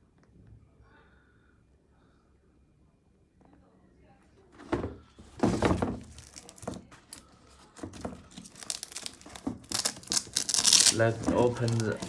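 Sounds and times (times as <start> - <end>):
packaging rustling and crinkling: 5.2 - 12.0.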